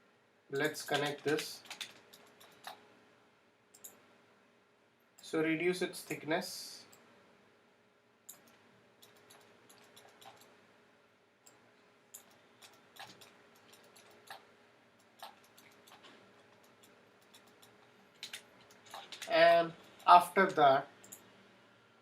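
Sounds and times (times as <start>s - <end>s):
computer mouse clicks: 0.6s - 2.8s, 3.7s - 4.0s, 8.3s - 10.5s, 11.4s - 14.4s, 15.0s - 20.1s, 21.0s - 21.3s.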